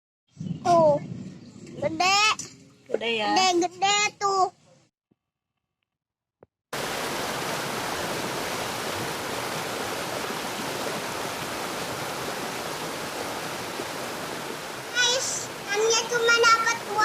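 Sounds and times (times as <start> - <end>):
running water rushing: 6.8 - 17.0.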